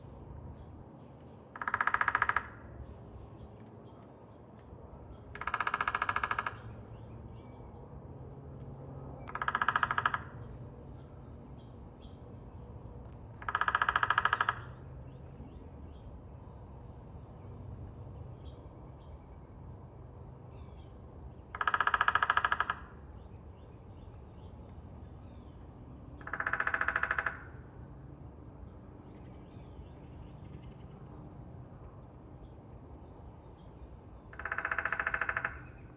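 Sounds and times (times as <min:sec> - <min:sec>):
woodpecker drumming: 0:01.5 - 0:02.7, 0:05.3 - 0:06.9, 0:09.2 - 0:10.5, 0:13.0 - 0:15.2, 0:21.4 - 0:23.0, 0:26.2 - 0:27.6, 0:34.3 - 0:35.8.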